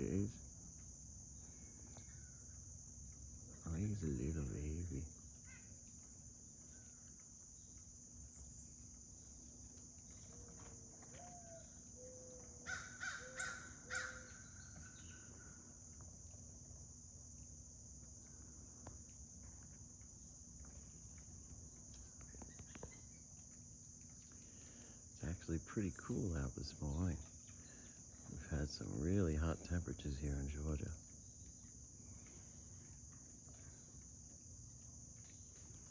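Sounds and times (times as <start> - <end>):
insects droning: 0.0 - 35.9
blue jay harsh calls: 12.6 - 15.2.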